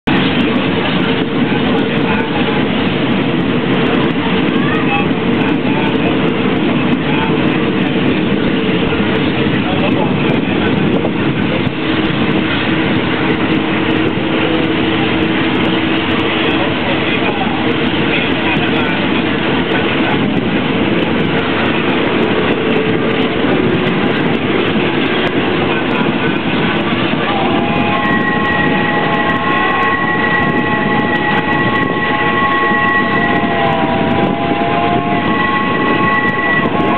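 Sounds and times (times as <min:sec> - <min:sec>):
train rumbling: 0:00.0 - 0:36.9.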